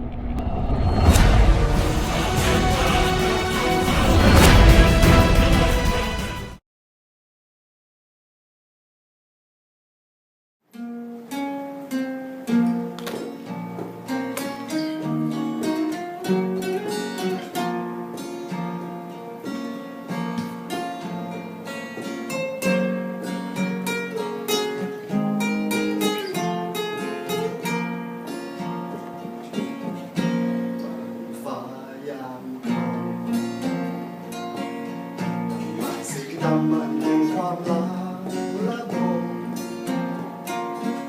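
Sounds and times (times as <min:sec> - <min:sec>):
acoustic guitar picking: 0:10.8 - 0:41.0.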